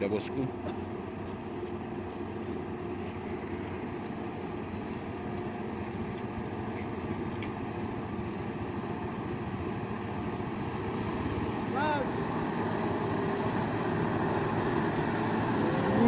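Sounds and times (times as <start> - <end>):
high-pitched whine: 0.0 - 16.0
truck diesel engine labouring: 9.6 - 16.0.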